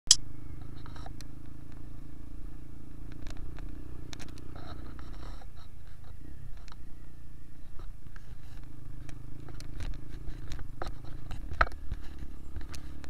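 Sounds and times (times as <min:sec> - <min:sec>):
motorcycle engine running: 0:00.2 - 0:13.0
knocks and rattles from bike: 0:02.9 - 0:06.9, 0:07.6 - 0:13.0.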